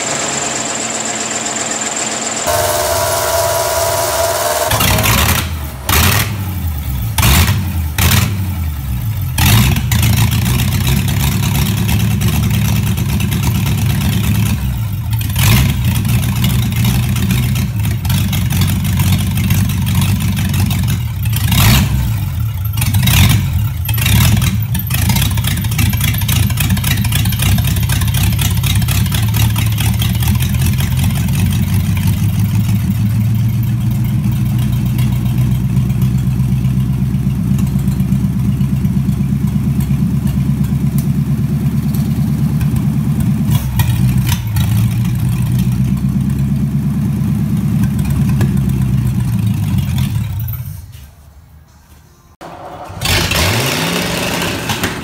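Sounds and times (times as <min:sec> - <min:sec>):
engine running and revving: 0:00.0 - 0:12.6, 0:13.4 - 0:18.6, 0:21.2 - 0:25.9, 0:52.4 - 0:55.0.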